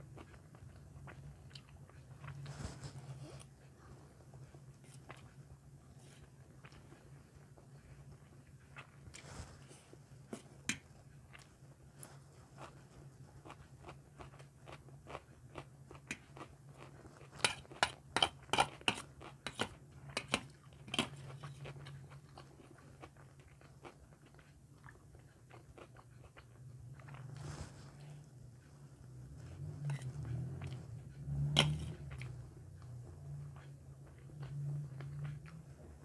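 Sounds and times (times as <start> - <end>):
chewing fried rice: 0.0 - 36.0
low steady hum: 0.0 - 36.0
metal spoon scooping from steel plate: 29.9 - 30.2.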